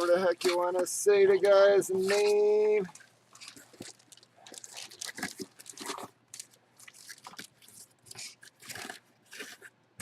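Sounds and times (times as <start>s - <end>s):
packaging crinkling: 0.0s - 9.8s.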